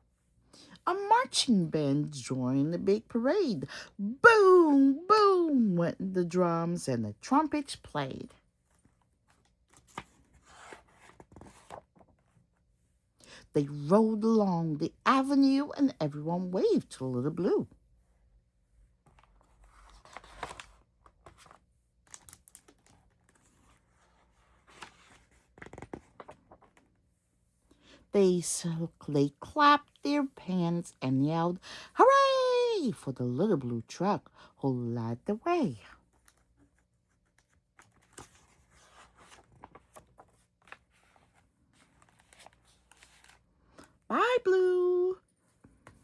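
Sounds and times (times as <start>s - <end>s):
paper pages turning: 8.7s - 12.4s, 19.0s - 27.0s, 36.1s - 44.0s.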